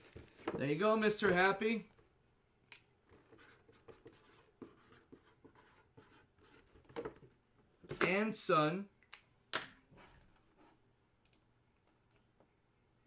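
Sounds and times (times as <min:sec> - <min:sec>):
pen scratching on paper: 0:03.1 - 0:07.0.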